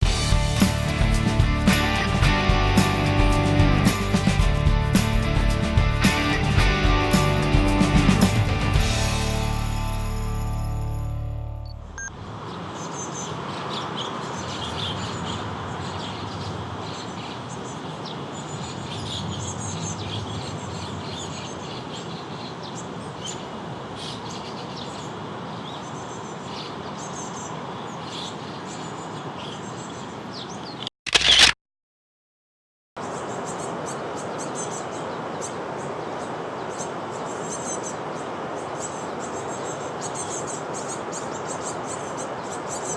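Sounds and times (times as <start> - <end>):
steady rushing noise: 0.0 - 10.2
small birds chirping: 0.0 - 10.4, 12.4 - 31.4, 33.0 - 42.9.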